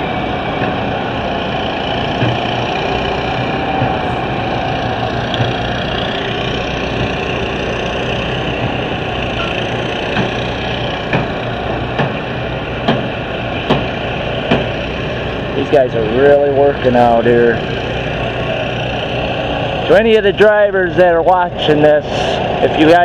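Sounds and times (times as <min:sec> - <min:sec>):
car engines running: 0:00.0 - 0:23.0
sharp knocks: 0:02.2 - 0:02.4, 0:05.3 - 0:05.6, 0:08.5 - 0:10.4, 0:11.0 - 0:14.8.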